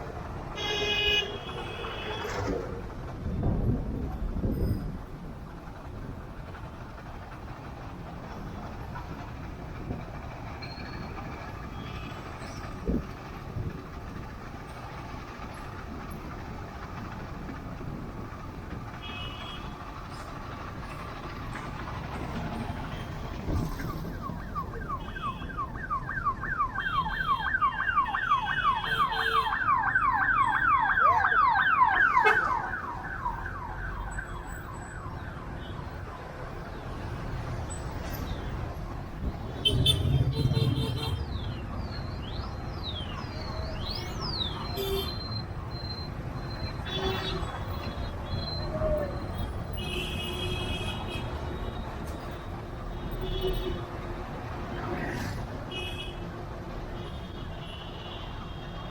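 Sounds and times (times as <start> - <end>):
road traffic: 0.0 - 58.9
electronic siren-like horn chirping: 26.6 - 34.9.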